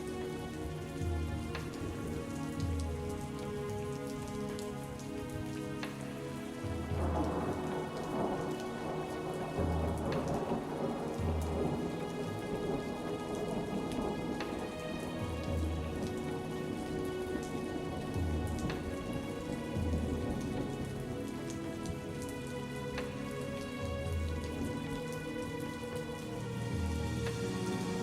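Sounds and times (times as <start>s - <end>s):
raindrop ticks: 0.0s - 28.0s
soft music with held notes: 0.0s - 28.0s
steady rain falling: 0.0s - 28.0s
thunder rumbles: 6.8s - 22.3s.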